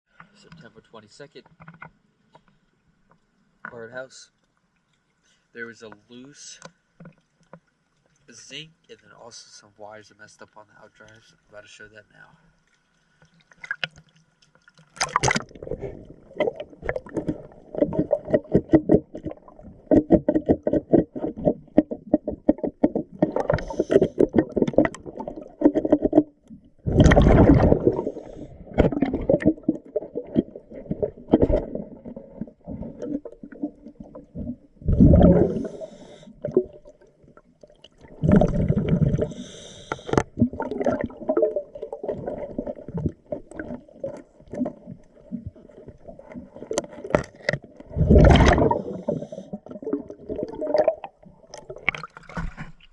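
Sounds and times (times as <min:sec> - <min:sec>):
underwater clicks and knocks: 0:01.4 - 0:03.8, 0:05.9 - 0:08.2, 0:13.2 - 0:35.7, 0:39.9 - 0:52.9
scuba exhaled bubbles gurgling: 0:14.7 - 0:52.9.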